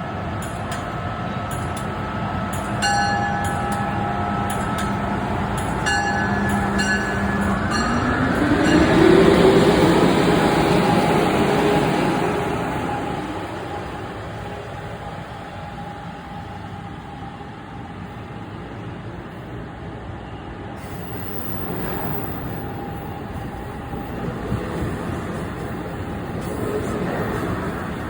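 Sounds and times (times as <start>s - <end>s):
locomotive bell ringing: 2.5s - 9.8s.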